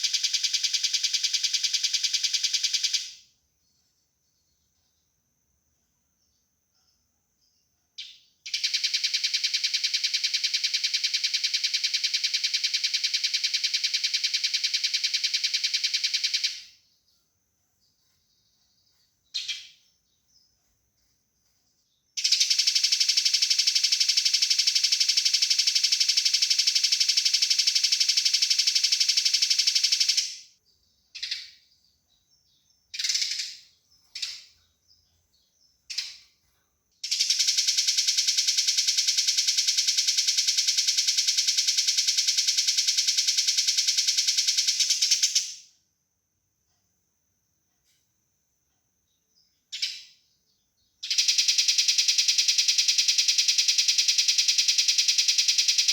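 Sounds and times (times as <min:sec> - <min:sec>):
sparrow chirping chatter: 0:17.8 - 0:21.6
sparrow single calls: 0:19.3 - 0:19.9.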